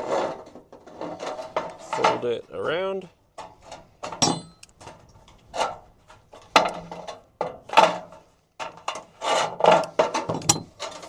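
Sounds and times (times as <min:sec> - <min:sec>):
aluminium sheet metallic rattles: 0:03.3 - 0:11.0.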